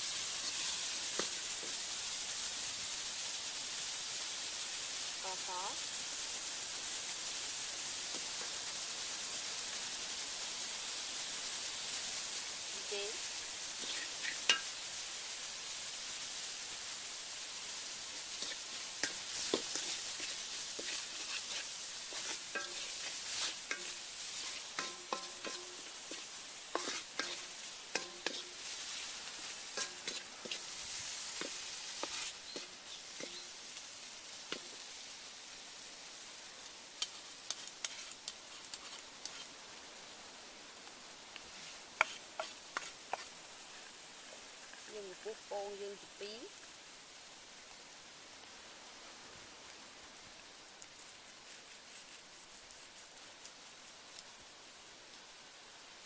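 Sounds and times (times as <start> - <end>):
meat sizzling in a wok: 0.0 - 56.0
wooden spatula scraping pan: 18.4 - 29.1, 29.8 - 33.4, 37.6 - 39.5, 41.5 - 43.9.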